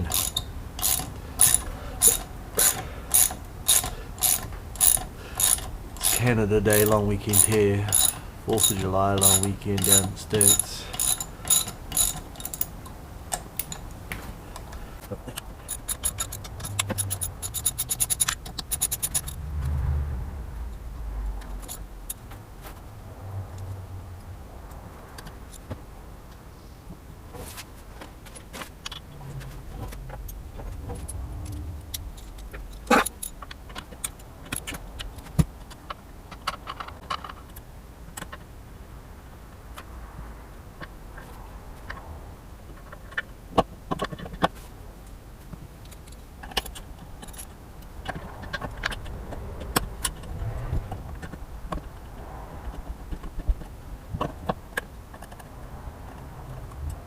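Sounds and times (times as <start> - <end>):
metal hand tools clinking: 0.0 - 12.8, 15.7 - 19.4
steady low rumble: 19.1 - 26.3, 29.0 - 35.3, 47.0 - 57.0.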